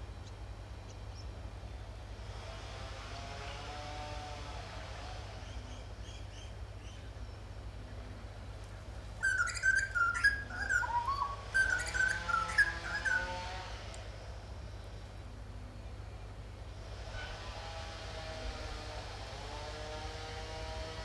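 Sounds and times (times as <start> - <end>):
faint low hum: 4.3 - 21.0
birds chirping and warbling: 5.3 - 13.8.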